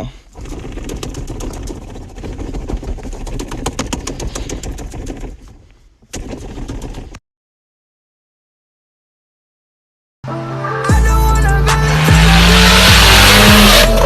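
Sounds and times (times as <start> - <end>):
car engine popping: 0.3 - 7.2.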